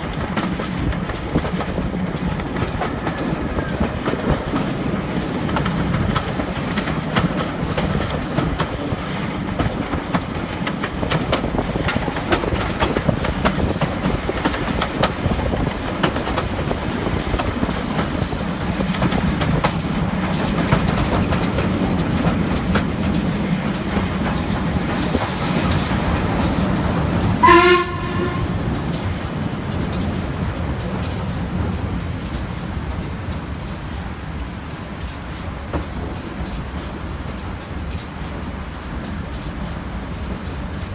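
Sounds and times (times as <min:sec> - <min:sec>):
train rumble: 0:00.0 - 0:40.9
wheels clicking over rail joints: 0:00.0 - 0:40.9
steam whistle blast: 0:27.4 - 0:28.6.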